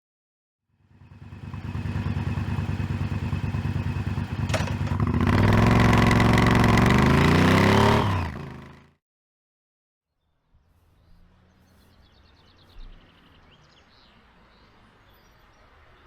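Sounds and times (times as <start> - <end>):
motorcycle engine idling and revving: 0.7 - 9.0.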